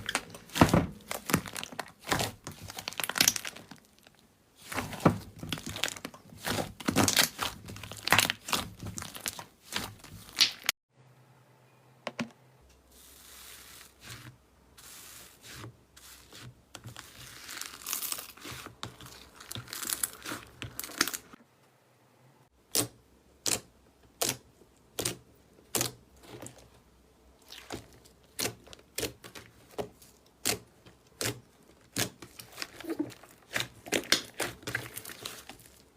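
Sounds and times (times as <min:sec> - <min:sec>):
slime crackling: 0:00.0 - 0:10.7, 0:13.0 - 0:21.4, 0:27.4 - 0:35.9.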